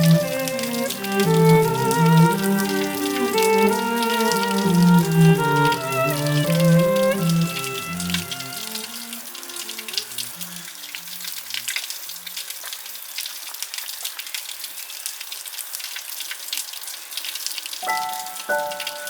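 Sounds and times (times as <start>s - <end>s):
soft background music: 0.0s - 10.0s, 17.8s - 19.0s
water drops splashing: 0.0s - 10.6s, 17.8s - 19.0s.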